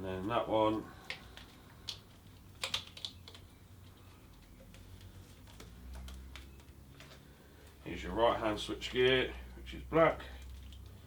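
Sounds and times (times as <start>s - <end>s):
plastic connectors clicking: 1.0s - 7.8s.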